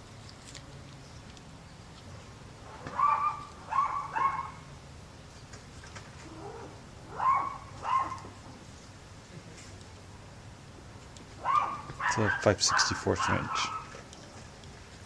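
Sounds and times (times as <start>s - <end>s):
animal high-pitched cries: 2.8s - 4.7s, 6.3s - 8.3s, 11.4s - 13.9s.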